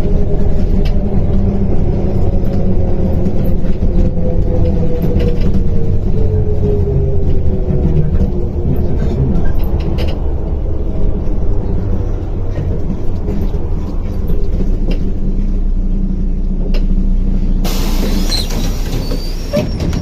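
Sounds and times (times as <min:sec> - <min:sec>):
bus engine rumble: 0:00.0 - 0:20.0
loud air hiss: 0:17.6 - 0:19.6.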